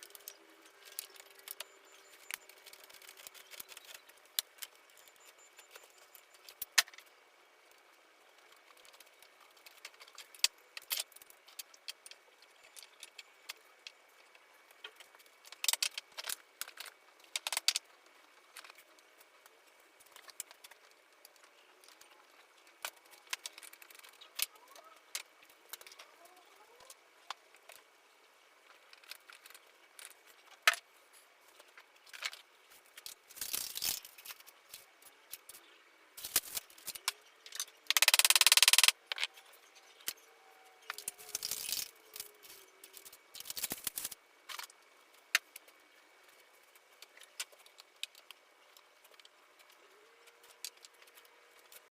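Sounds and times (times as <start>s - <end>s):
wooden parts and tools clicking: 0.0s - 7.1s, 8.4s - 27.9s, 28.6s - 30.9s, 31.5s - 40.2s, 40.8s - 51.9s.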